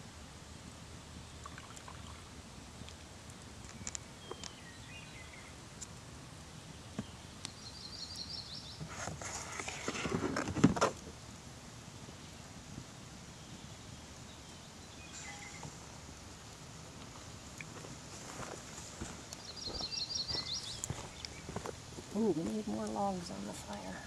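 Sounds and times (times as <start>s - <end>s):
faint bird chirps: 6.7s - 8.8s, 13.3s - 15.8s, 19.3s - 21.6s
bird trill: 15.0s - 15.7s.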